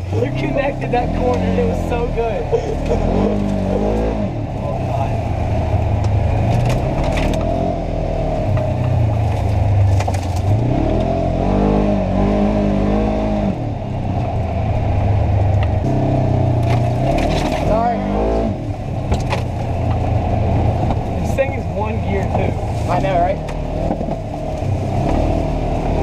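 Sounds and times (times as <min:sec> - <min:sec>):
vehicle engine revving: 0:00.0 - 0:26.0
knocks and rattles: 0:19.0 - 0:22.7, 0:23.4 - 0:25.3.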